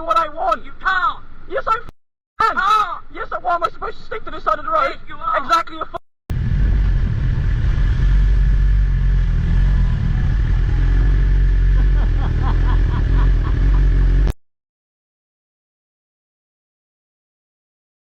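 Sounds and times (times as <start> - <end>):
vehicle engine and road rumble: 6.3 - 14.4.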